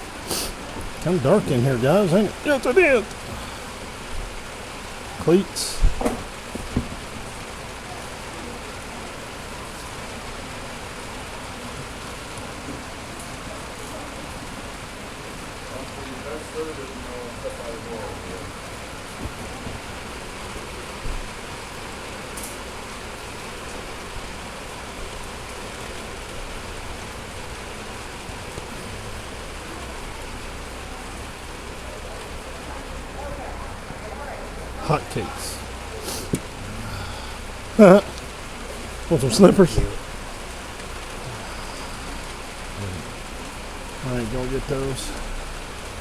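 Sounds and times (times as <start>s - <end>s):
steady rain falling: 0.0s - 46.0s.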